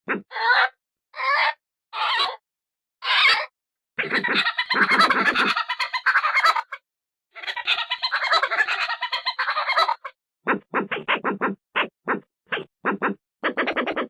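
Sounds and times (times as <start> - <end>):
badger chattering: 4.0 - 6.4.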